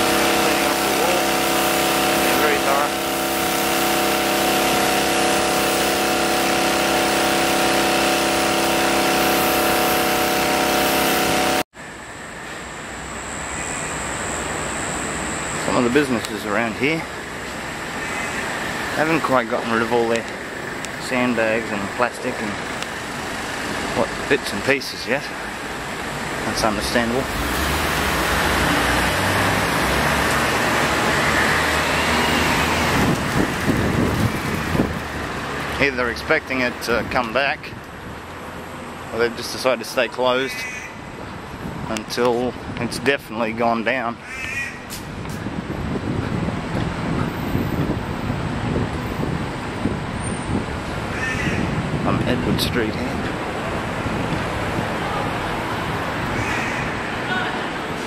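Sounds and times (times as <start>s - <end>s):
diesel engine droning: 0.0s - 43.7s
road noise: 0.0s - 58.0s.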